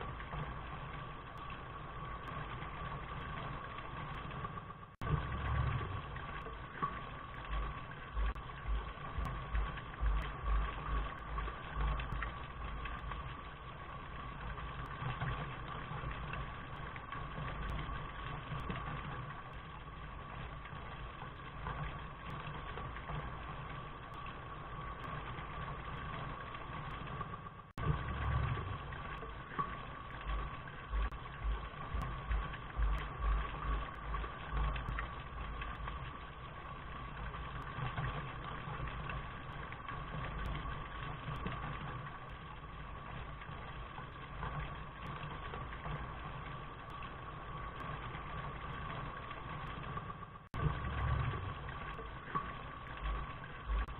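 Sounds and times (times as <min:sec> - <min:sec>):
faint hum: 0:00.0 - 0:53.9
steady rain: 0:00.0 - 0:53.9
low thumps: 0:30.9 - 0:35.0.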